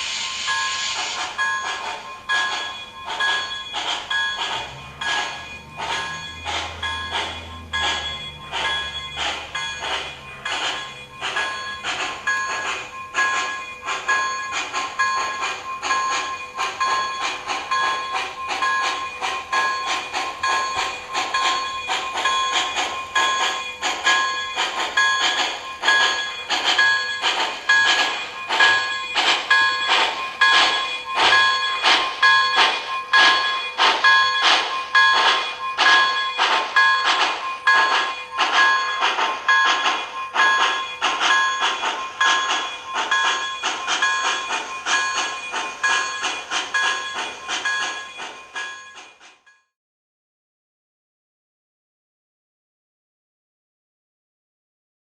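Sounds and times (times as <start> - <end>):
rhythmic steam chuffs: 0.0 - 49.6.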